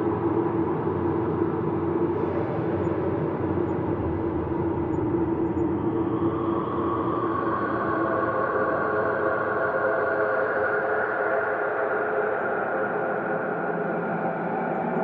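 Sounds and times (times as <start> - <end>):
ambient drone of sustained tones: 0.0 - 15.0.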